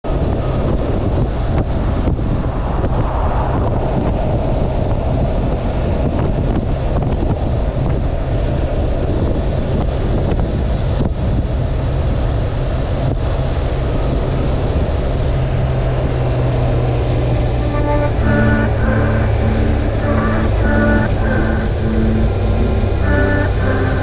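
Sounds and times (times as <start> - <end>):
wind buffeting microphone: 0.0 - 24.0
motorcycle engine hum: 11.6 - 24.0.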